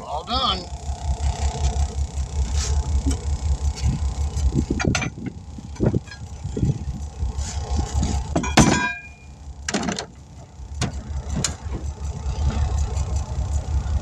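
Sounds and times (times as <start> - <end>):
engine idling: 0.0 - 14.0
metallic clank: 8.0 - 10.2.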